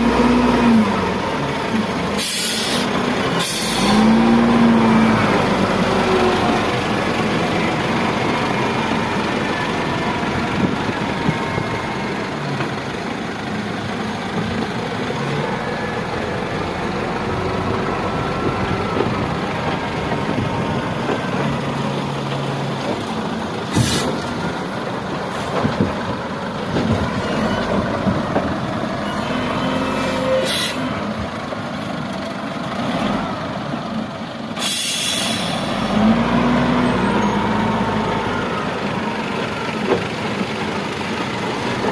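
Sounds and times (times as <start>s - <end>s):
heavy construction machinery running: 0.0s - 41.9s.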